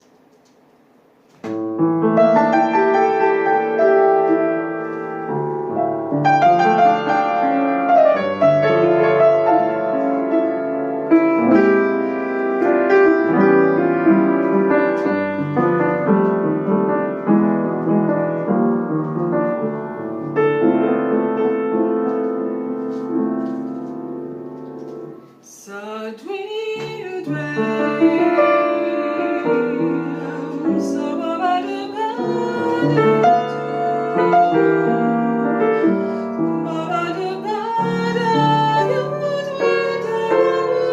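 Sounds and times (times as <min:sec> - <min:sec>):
piano playing slow chords: 0:01.5 - 0:25.3, 0:26.9 - 0:40.9
woman singing: 0:25.4 - 0:40.9.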